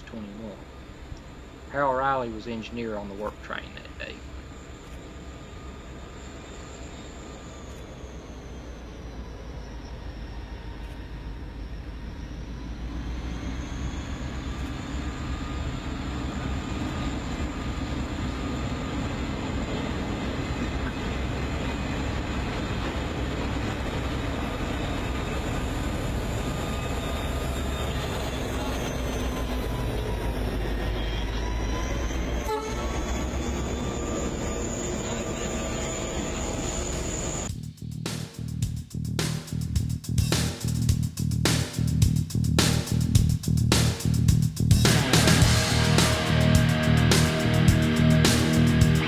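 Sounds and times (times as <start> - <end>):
diesel locomotive engine rumbling: 0.0 - 49.0.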